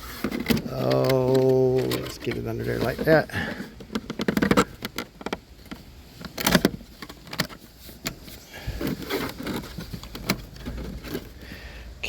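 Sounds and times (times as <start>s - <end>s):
cable rubbing scrapes: 0.0s - 11.4s.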